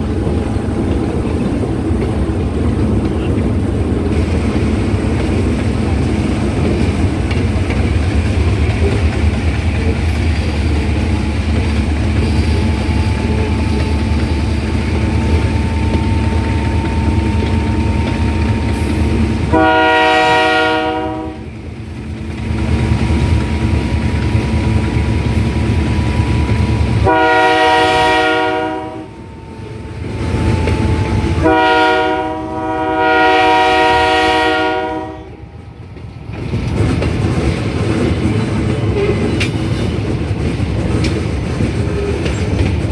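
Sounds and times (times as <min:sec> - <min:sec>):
train rumbling on rails: 0:00.0 - 0:42.9
locomotive horn blasts: 0:12.2 - 0:21.5, 0:26.4 - 0:35.5.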